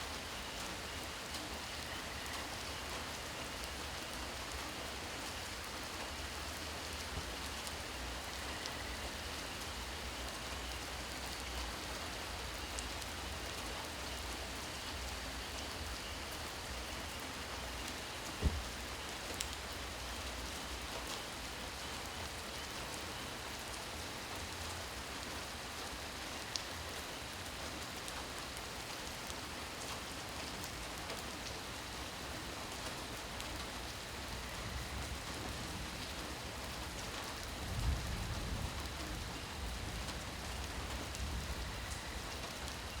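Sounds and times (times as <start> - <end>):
steady rain: 0.0 - 43.0
sharp knock: 18.4 - 18.6.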